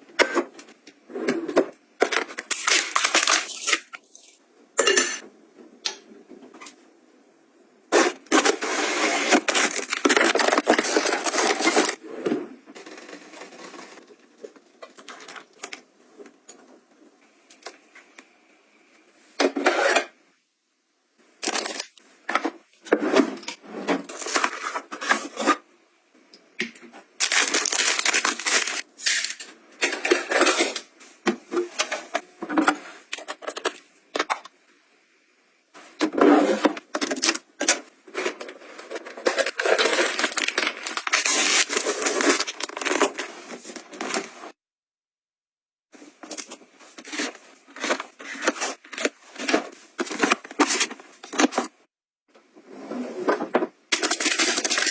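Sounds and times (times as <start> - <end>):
plastic packaging rustling: 2.1 - 4.4, 8.4 - 12.0, 21.4 - 22.0, 27.2 - 30.8, 36.9 - 44.3, 53.9 - 54.9.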